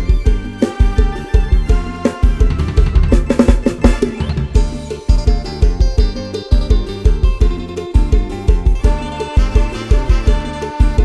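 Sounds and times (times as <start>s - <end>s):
dance music backing track: 0.0s - 11.0s
drum fill: 0.0s - 11.0s.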